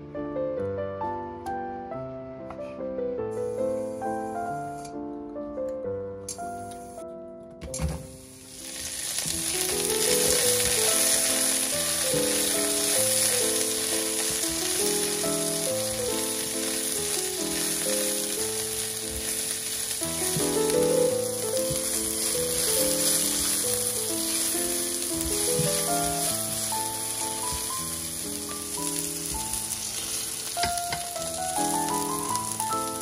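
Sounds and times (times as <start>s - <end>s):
background music: 0.0s - 33.0s
mushrooms sizzling in oil: 3.4s - 4.6s, 8.1s - 33.0s.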